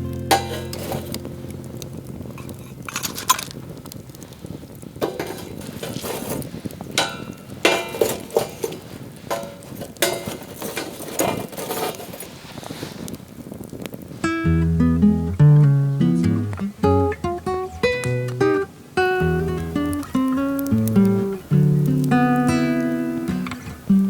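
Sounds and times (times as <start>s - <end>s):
utensils and dishes clinking: 0.3s - 1.2s, 2.4s - 3.5s, 5.0s - 6.4s, 7.0s - 12.3s.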